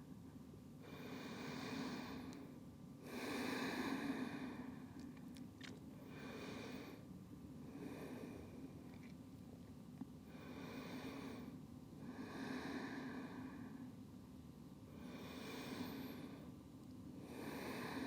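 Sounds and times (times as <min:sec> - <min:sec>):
faint low hum: 0:00.0 - 0:18.0
person breathing slowly: 0:00.8 - 0:05.1, 0:06.0 - 0:08.8, 0:10.3 - 0:14.0, 0:14.9 - 0:16.5, 0:17.2 - 0:18.0.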